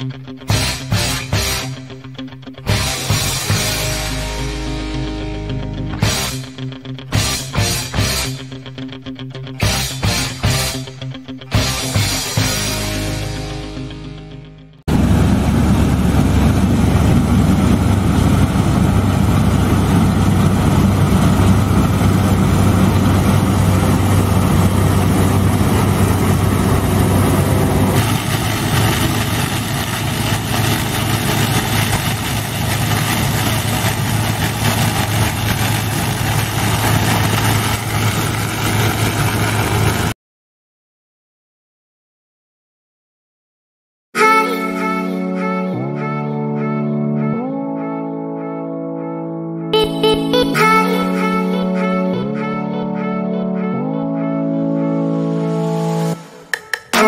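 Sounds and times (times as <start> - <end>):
bright machinery noise: 14.9 - 40.1
combine harvester engine humming: 14.9 - 40.1.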